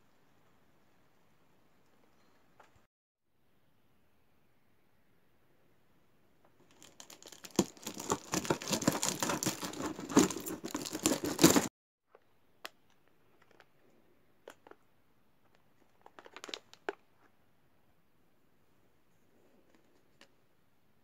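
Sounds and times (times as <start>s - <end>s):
packaging crinkling and rustling: 6.6s - 11.7s, 15.9s - 17.0s.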